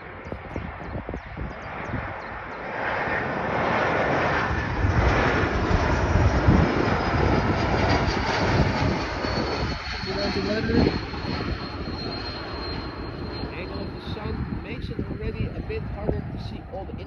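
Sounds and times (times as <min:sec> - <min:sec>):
jet airliner passing: 0:00.0 - 0:17.0
thin high whine: 0:09.4 - 0:15.6.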